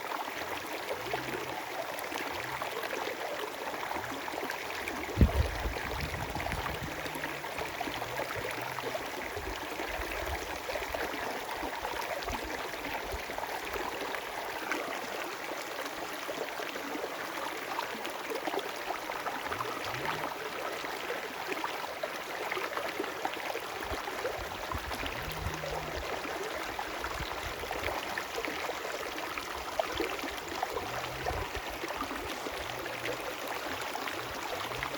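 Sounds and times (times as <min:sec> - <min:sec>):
short low rumbles: 0:05.1 - 0:08.6, 0:24.8 - 0:26.2
sharp low thump: 0:05.2 - 0:07.3.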